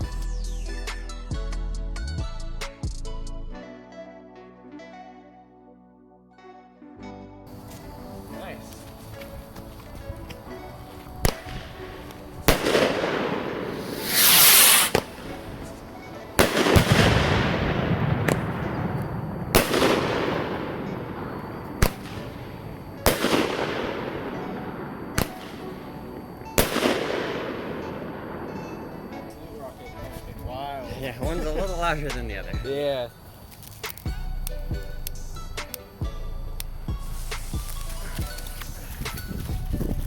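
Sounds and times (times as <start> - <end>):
firework hiss: 10.9 - 29.6, 35.2 - 39.9
fireworks bangs: 11.2 - 29.4
rolling echo: 11.2 - 29.6.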